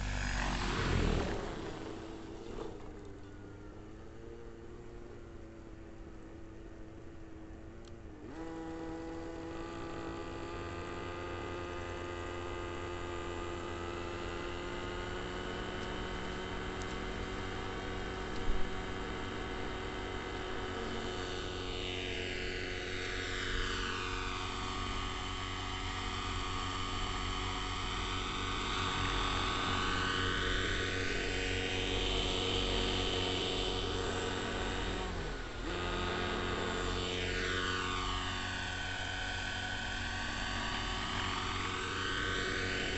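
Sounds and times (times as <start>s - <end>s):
model helicopter engine and rotors: 0.0s - 42.9s.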